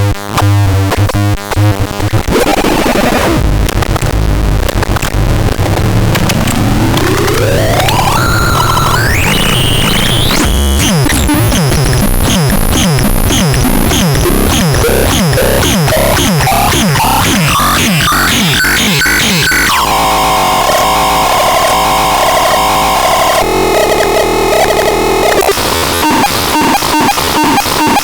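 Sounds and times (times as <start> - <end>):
synthesizer noise wash: 6.4 - 24.0
pulsing high tone: 7.4 - 23.4.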